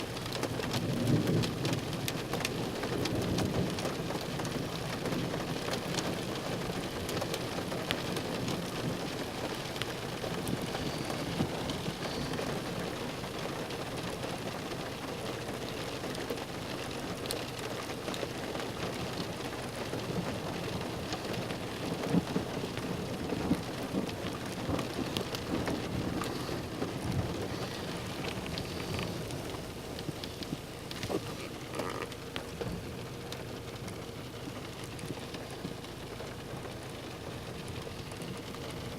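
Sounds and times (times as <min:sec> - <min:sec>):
raindrops ticking on a surface: 0:00.0 - 0:38.9
steady rain falling: 0:00.0 - 0:38.9.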